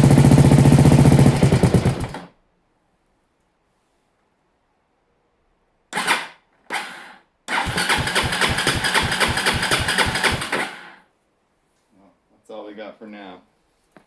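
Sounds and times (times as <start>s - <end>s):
electric starter cranking engine: 0.0s - 2.3s, 6.0s - 11.0s.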